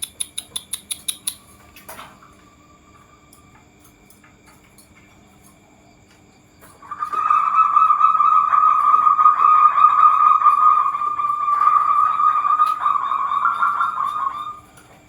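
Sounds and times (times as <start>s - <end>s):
dove rolling call: 7.2s - 14.7s.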